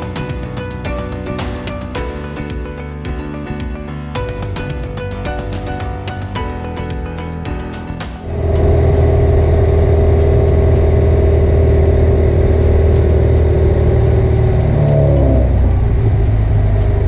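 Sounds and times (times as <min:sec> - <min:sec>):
airplane engine and propeller: 0:08.2 - 0:17.0.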